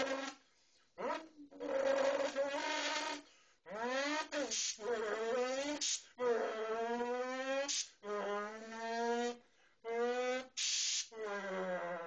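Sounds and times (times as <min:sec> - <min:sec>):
man imitating blow-off hisses: 0:04.4 - 0:04.9, 0:10.6 - 0:11.3.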